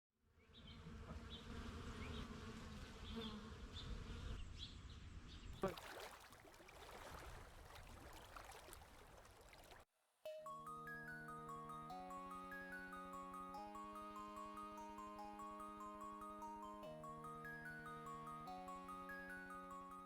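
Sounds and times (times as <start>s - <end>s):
faint buzzing hum: 0.5s - 5.0s.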